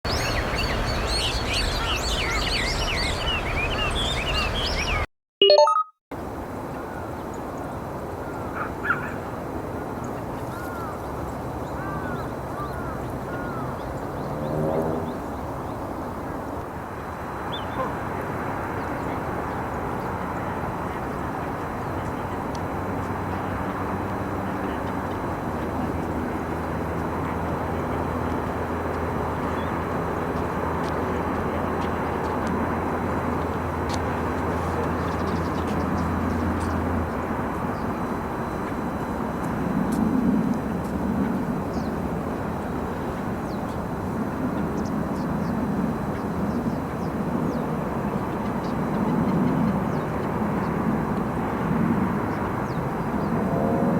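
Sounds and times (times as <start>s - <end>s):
low engine drone: 13.2s - 53.9s.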